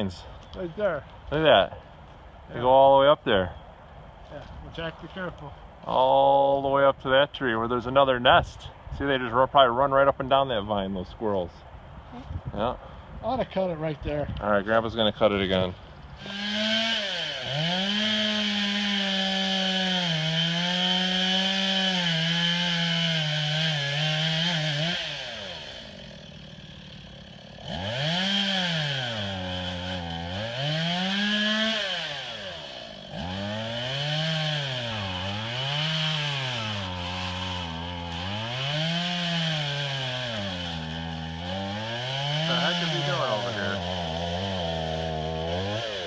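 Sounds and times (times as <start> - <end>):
chainsaw cutting and revving: 15.3 - 46.0.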